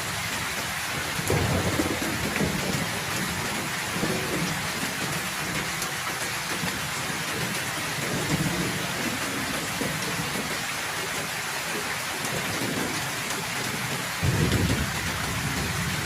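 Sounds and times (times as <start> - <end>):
heavy rain: 0.0 - 16.0
low thunder rumbling: 1.0 - 5.6, 14.2 - 16.0.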